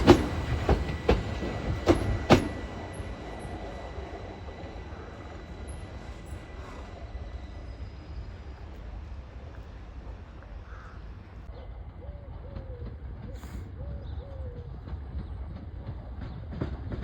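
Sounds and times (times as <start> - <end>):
low rumble of a train: 0.0 - 17.0
bird calls: 10.6 - 15.6.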